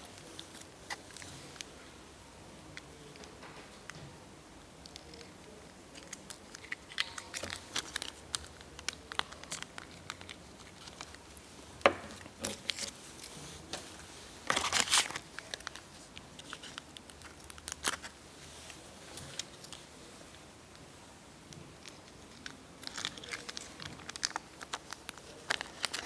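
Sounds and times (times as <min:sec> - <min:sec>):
crinkling and tearing: 0:04.8 - 0:19.9, 0:21.8 - 0:26.0
rustling: 0:05.9 - 0:21.0.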